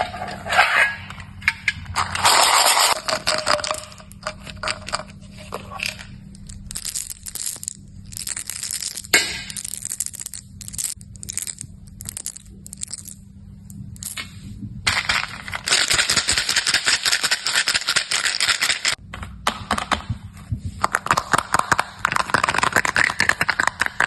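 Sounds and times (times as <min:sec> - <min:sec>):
candy wrapper crinkling: 0:06.3 - 0:13.2.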